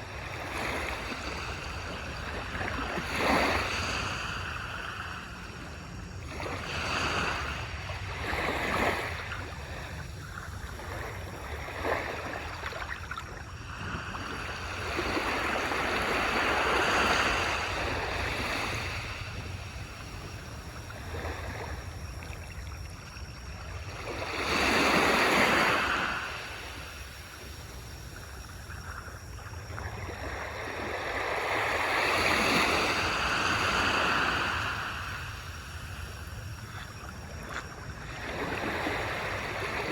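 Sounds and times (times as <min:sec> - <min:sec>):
low rumble of surf: 0:00.0 - 0:39.9
small waves washing on beach: 0:00.0 - 0:39.9.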